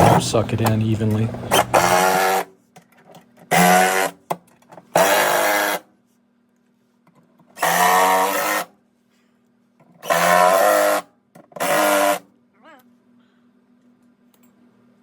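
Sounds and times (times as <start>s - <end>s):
power driver whining: 0.0s - 2.5s, 3.4s - 4.3s, 7.6s - 8.7s, 10.0s - 12.3s.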